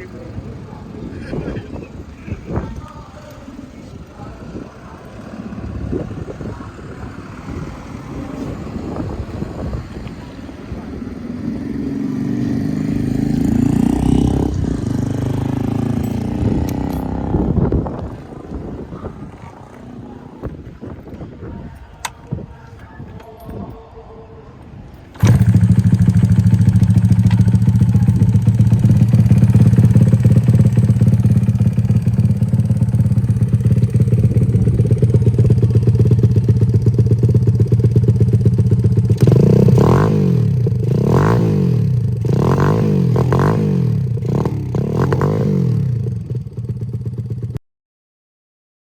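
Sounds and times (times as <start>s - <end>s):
small engine idling and revving: 4.1s - 19.7s, 25.2s - 47.6s.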